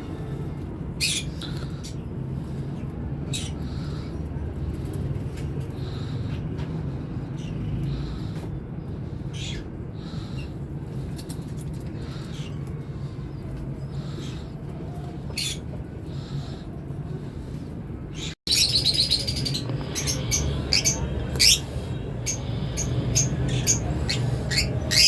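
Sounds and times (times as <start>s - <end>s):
caged birds chirping: 0.0s - 25.0s
low background rumble: 0.0s - 25.0s.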